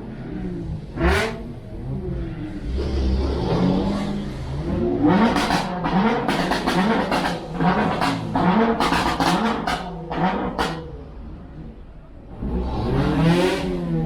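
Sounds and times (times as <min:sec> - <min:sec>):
car engine throttle blips: 0:00.0 - 0:14.0.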